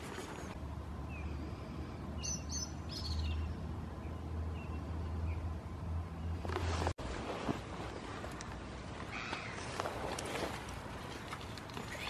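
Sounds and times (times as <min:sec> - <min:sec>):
small birds chirping: 0:01.1 - 0:05.6.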